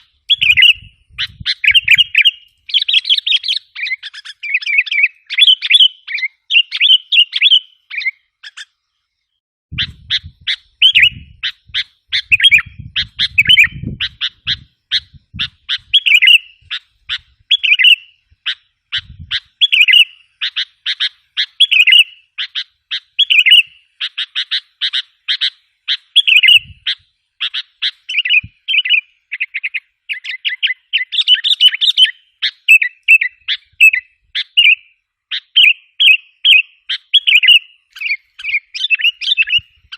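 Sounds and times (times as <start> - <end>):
bulbul chirping: 0.0 - 8.8, 9.7 - 39.9.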